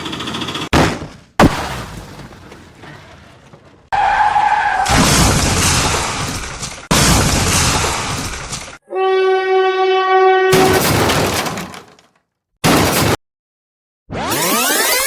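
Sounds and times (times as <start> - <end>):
cartoon crashes: 4.8 - 8.3, 10.5 - 11.9, 14.1 - 15.0.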